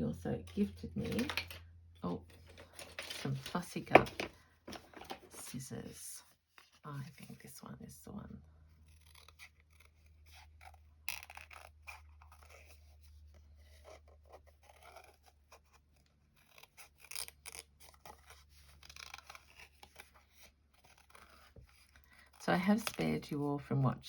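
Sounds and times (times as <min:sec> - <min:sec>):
low steady hum: 0:00.0 - 0:08.8
scissors snipping paper: 0:08.9 - 0:12.8, 0:16.4 - 0:23.2.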